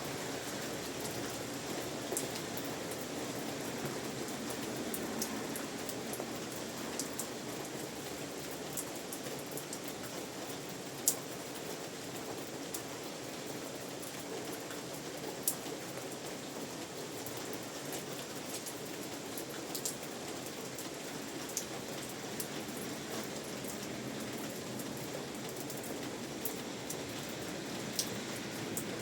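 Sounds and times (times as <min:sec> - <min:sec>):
rain pattering: 0:00.0 - 0:29.0
sharp raindrops striking nearby: 0:00.0 - 0:29.0.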